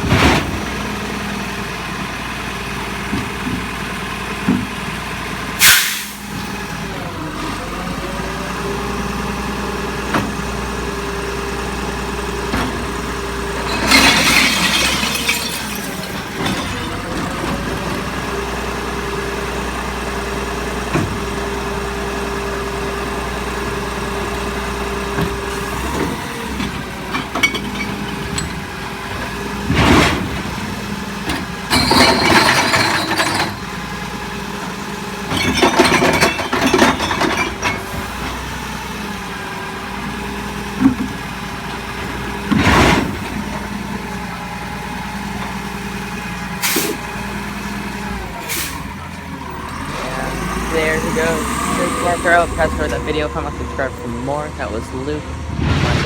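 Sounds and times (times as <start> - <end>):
recyclables crashing into hopper: 13.5 - 17.7, 29.5 - 30.8, 31.4 - 33.8, 35.3 - 38.0.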